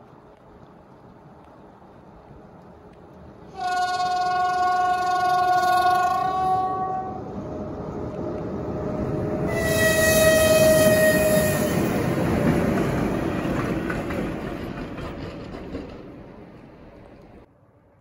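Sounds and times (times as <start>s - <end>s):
train rumbling past: 0.0s - 18.0s
train horn: 3.5s - 7.3s, 9.5s - 11.9s.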